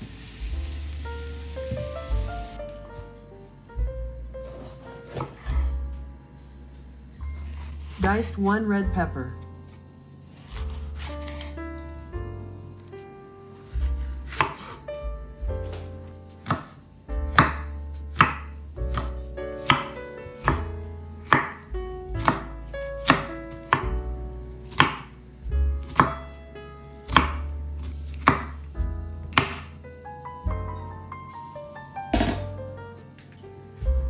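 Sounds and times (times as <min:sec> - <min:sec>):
background music: 0:00.0 - 0:34.0
knife chopping on cutting board: 0:04.4 - 0:05.7, 0:10.4 - 0:11.5, 0:13.6 - 0:14.8, 0:15.6 - 0:20.7, 0:21.3 - 0:24.0, 0:24.7 - 0:25.1, 0:25.8 - 0:26.2, 0:27.1 - 0:28.6, 0:29.3 - 0:29.7.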